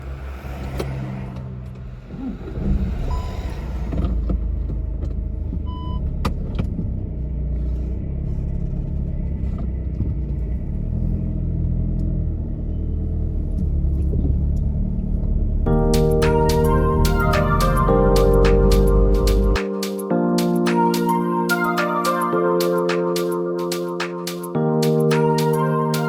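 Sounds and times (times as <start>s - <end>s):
car engine and road rumble: 0.0s - 19.6s.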